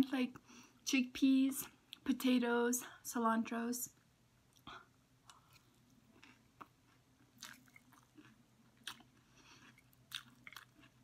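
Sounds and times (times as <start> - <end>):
soft chewing: 4.5 - 11.0.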